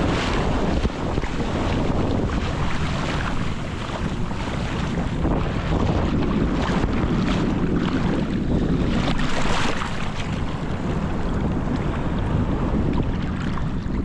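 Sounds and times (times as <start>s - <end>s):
ocean surf washing up: 0.0s - 5.8s
wind buffeting microphone: 0.0s - 14.0s.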